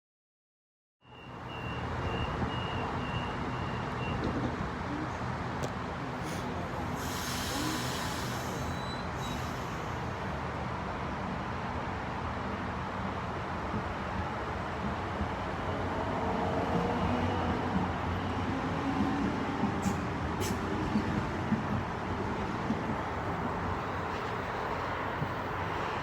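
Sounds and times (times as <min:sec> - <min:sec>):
electric train rumble and hum: 0:02.2 - 0:26.0
air hiss: 0:06.2 - 0:10.2.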